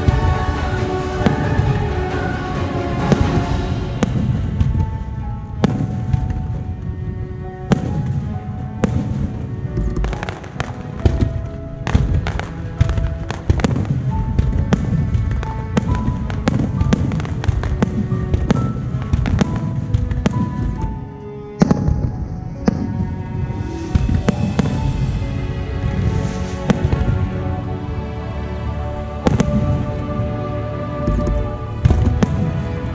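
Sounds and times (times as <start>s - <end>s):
fireworks bangs: 0.0s - 6.8s, 7.6s - 21.0s, 21.6s - 27.6s, 29.2s - 32.9s
music playing: 0.0s - 32.9s
low rumble: 21.8s - 32.9s.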